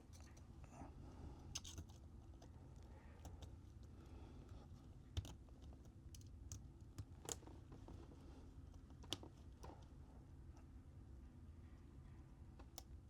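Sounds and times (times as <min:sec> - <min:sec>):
small clicks and taps of tools: 0:05.1 - 0:08.0, 0:08.7 - 0:09.9, 0:12.5 - 0:13.0.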